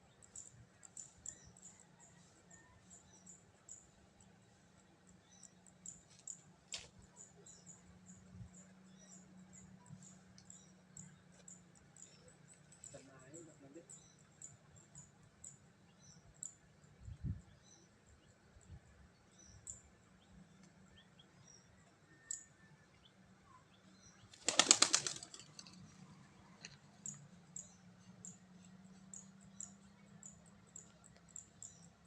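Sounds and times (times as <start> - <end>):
pigeon wings flapping: 24.3 - 25.7.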